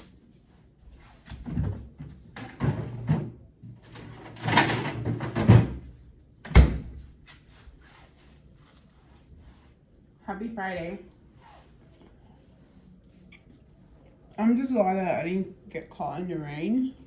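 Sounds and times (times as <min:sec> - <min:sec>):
objects knocking and thudding: 0:01.3 - 0:07.0.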